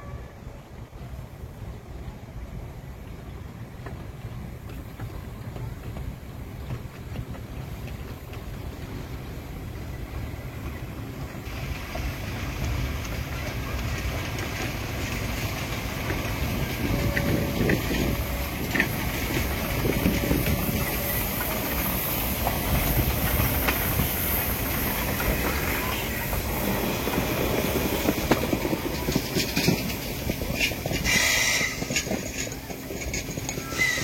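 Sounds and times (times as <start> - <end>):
train running on rails: 0.0 - 34.0
wheels clicking: 3.8 - 34.0
hiss: 7.6 - 34.0.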